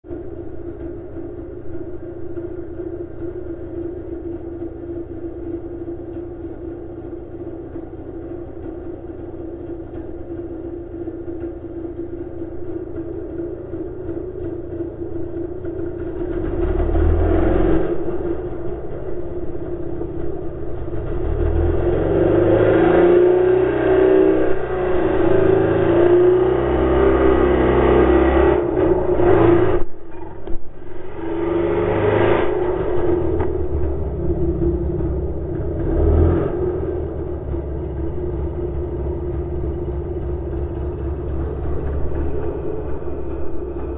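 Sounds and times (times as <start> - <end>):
heavy low rumble: 0.1 - 43.9
snowmobile engine revving: 21.0 - 29.9, 31.1 - 33.8.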